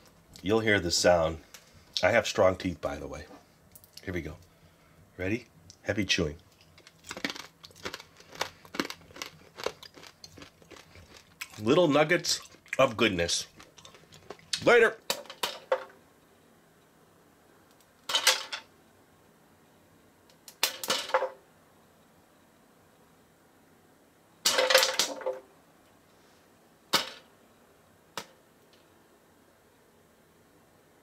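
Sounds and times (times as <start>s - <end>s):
popcorn crunching: 6.5s - 14.6s.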